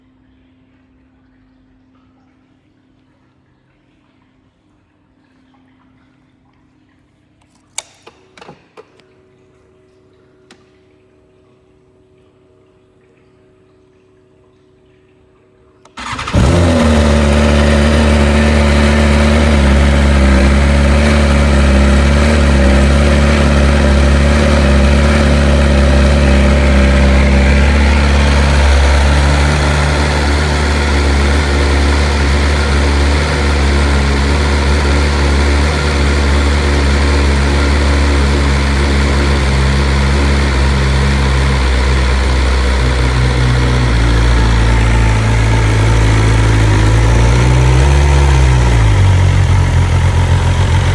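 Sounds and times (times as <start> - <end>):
motorcycle engine starting and idling: 15.8 - 50.9.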